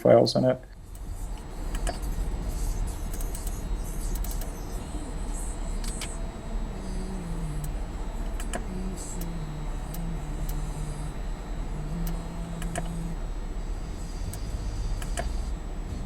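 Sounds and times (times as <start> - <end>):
car engine idling: 0.0 - 16.0
short light clicks: 5.8 - 6.2, 14.3 - 15.4.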